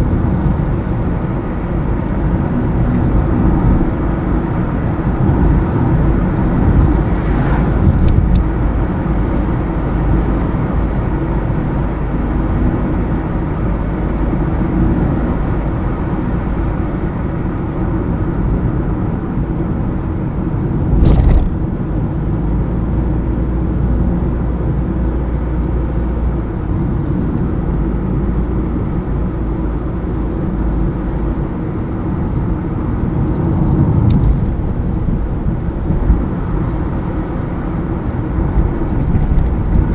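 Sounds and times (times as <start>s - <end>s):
car driving on highway: 0.0s - 39.9s
brief thump: 21.0s - 21.6s.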